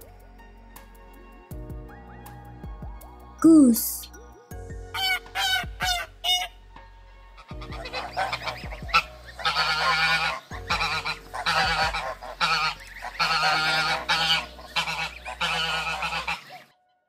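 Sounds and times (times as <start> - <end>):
goose honking: 7.6 - 16.7.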